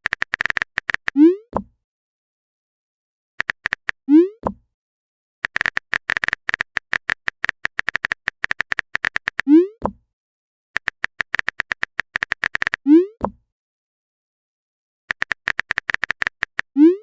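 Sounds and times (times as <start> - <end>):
keyboard typing clicks: 0.0 - 1.2, 3.4 - 4.0, 5.4 - 10.0, 10.8 - 13.4, 15.1 - 16.7.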